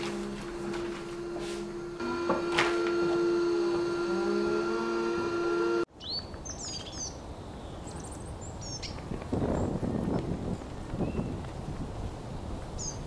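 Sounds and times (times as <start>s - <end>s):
steady hum: 0.0s - 5.9s
birds chirping: 2.8s - 11.5s.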